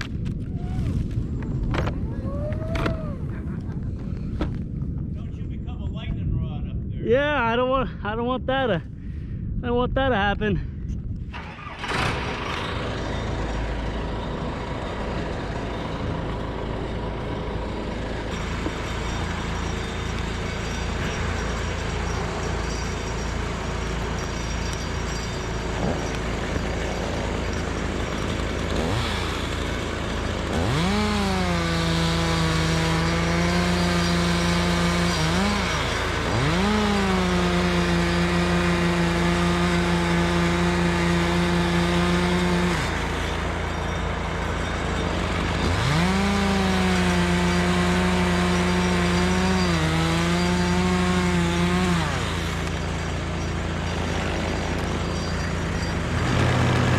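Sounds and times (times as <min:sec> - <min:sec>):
chainsaw revving at full throttle: 0:11.7 - 0:56.9.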